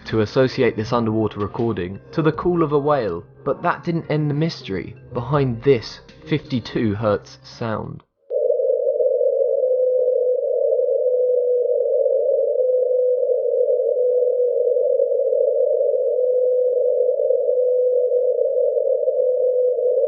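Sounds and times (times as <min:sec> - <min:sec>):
whale call tone: 0:08.3 - 0:20.0.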